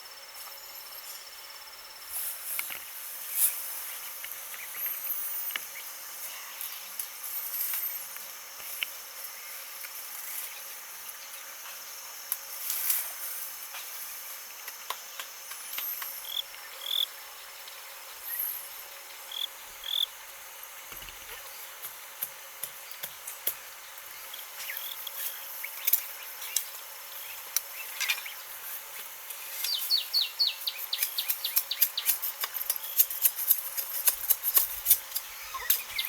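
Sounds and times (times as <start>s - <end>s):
crickets and insects chirring: 0.0s - 36.0s.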